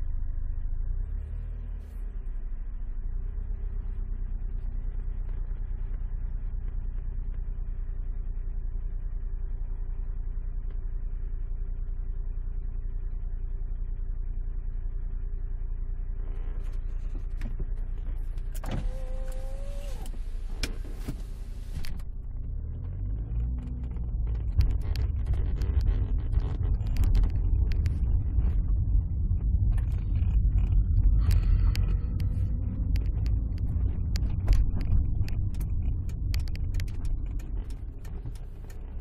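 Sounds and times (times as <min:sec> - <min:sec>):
car engine running: 0:00.0 - 0:39.0
sharp clicks: 0:31.2 - 0:39.0.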